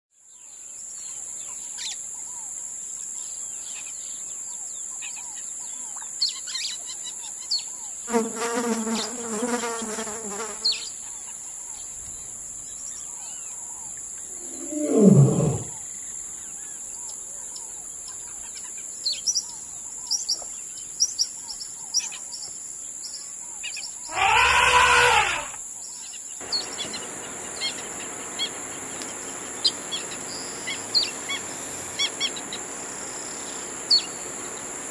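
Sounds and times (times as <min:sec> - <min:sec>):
loud animal calls: 0:14.3 - 0:15.8, 0:24.1 - 0:25.6
high-pitched insect drone: 0:14.4 - 0:15.8, 0:26.4 - 0:34.9.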